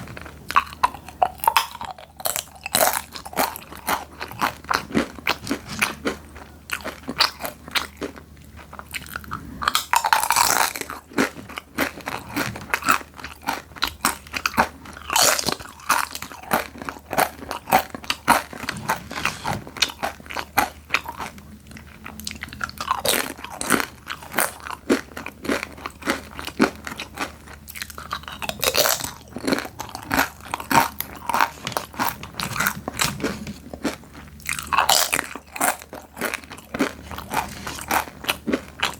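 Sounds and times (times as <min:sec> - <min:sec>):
crunching crispy snacks: 0:00.0 - 0:38.9.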